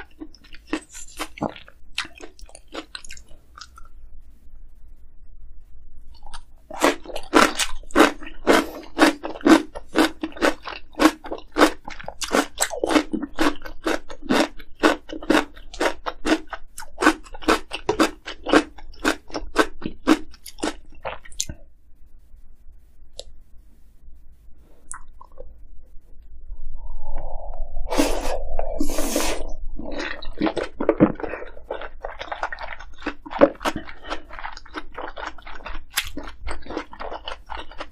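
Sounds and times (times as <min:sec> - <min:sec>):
crunchy chewing: 0:00.0 - 0:03.9, 0:06.1 - 0:21.6, 0:27.9 - 0:37.9.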